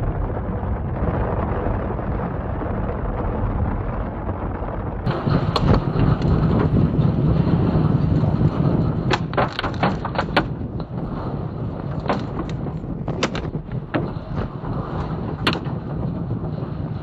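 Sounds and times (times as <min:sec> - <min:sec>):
storm wind buffeting: 0:00.0 - 0:17.0
sharp knocks and clatters: 0:05.0 - 0:15.9.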